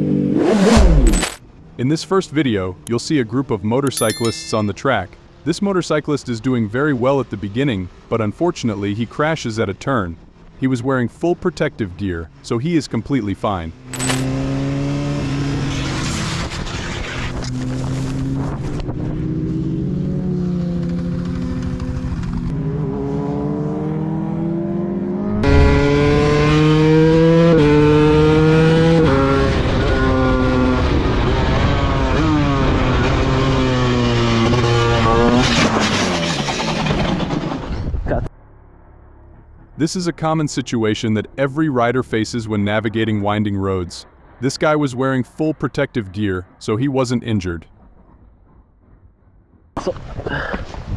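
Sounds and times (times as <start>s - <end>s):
motorcycle engine accelerating: 13.9s - 37.0s, 38.3s - 39.8s.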